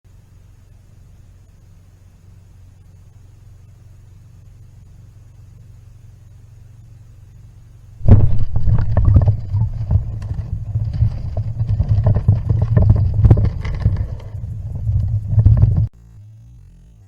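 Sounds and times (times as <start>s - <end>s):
water churning and bubbling underwater: 8.0s - 15.9s.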